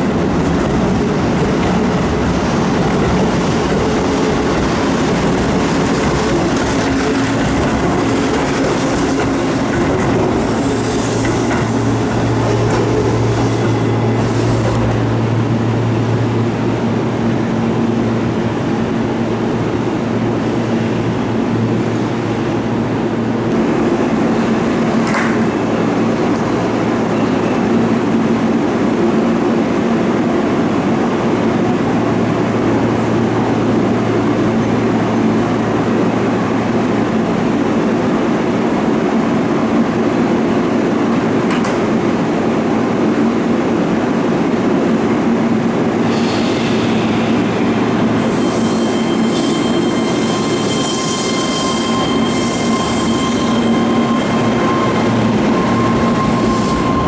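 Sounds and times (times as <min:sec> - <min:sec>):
electric train running: 0:00.1 - 0:18.8, 0:46.0 - 0:57.0
high-pitched wheel squeal: 0:46.2 - 0:57.0.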